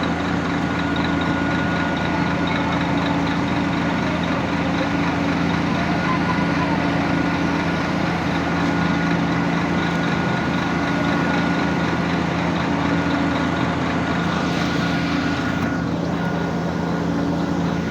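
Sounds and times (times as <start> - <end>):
engine drone: 0.0 - 17.9
high whine: 14.1 - 17.9.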